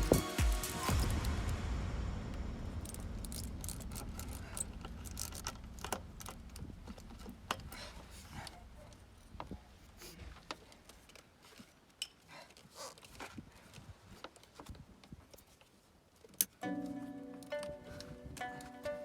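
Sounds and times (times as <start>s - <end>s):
low hum: 0.8s - 9.4s
tools and pipe fittings rattling: 2.8s - 8.6s.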